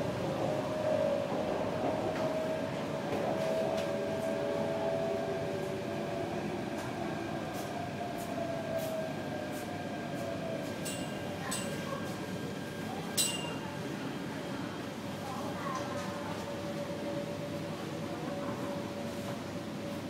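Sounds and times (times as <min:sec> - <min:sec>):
train car rumbling: 0:00.0 - 0:07.8.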